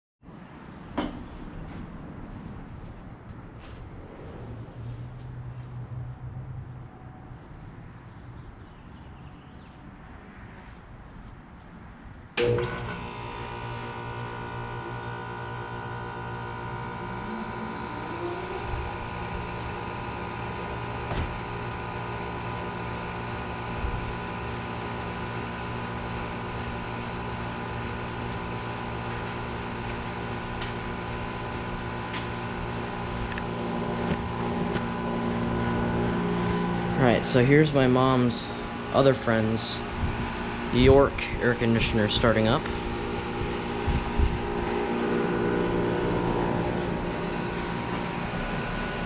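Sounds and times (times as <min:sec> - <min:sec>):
air conditioner unit humming: 0:12.5 - 0:49.0.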